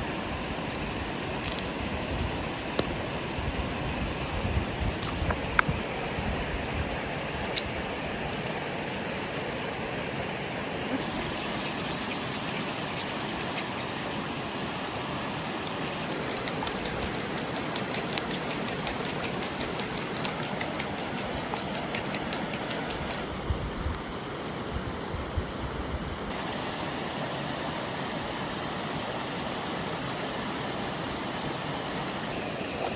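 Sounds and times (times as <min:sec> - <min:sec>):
fire pops and crackles: 0:01.4 - 0:01.7.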